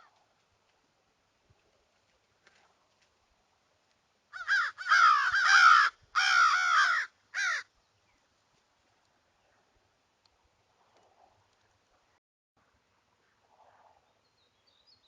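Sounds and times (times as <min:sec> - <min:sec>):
bird calling loudly: 0:04.4 - 0:07.7.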